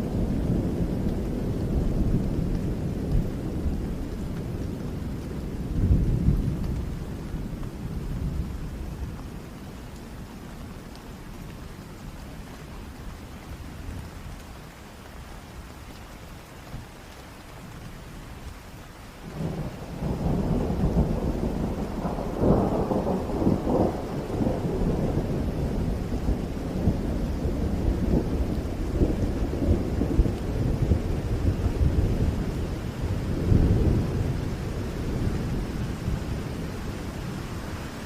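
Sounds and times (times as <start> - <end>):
rolling thunder: 0.0 - 9.1, 19.3 - 38.0
heavy rain falling: 0.0 - 38.0.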